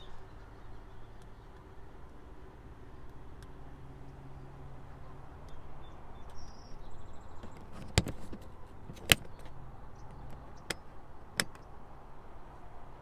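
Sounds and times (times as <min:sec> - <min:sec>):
sharp clicks: 0:07.4 - 0:11.6.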